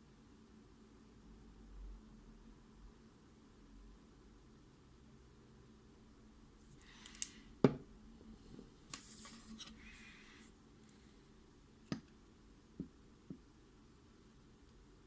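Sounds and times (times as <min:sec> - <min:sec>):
knock: 0:07.6 - 0:07.8.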